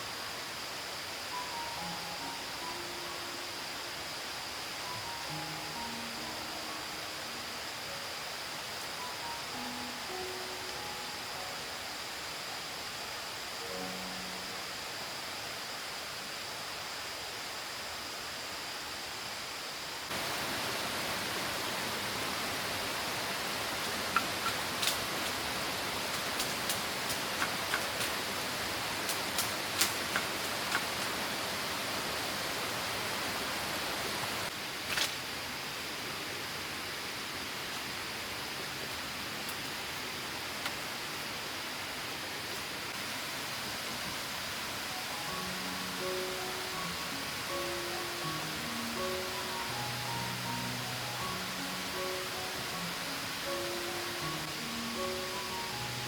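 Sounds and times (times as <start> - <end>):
falling water rushing: 20.0 - 56.0.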